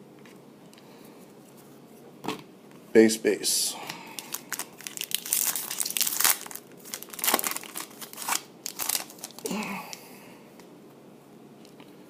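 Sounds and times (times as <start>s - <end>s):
trading cards and wrappers crinkling: 4.1s - 10.0s.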